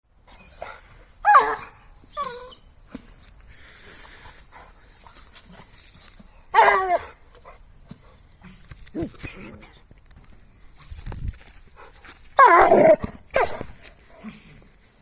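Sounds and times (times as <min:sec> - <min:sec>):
dog yelping: 0:01.2 - 0:02.6, 0:06.5 - 0:07.2, 0:12.4 - 0:13.7.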